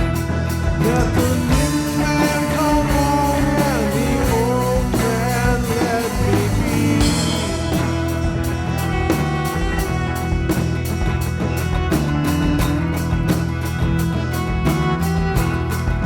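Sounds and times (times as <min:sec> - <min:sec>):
person singing: 0:00.0 - 0:09.6
rock song with guitar and drums: 0:00.0 - 0:16.0.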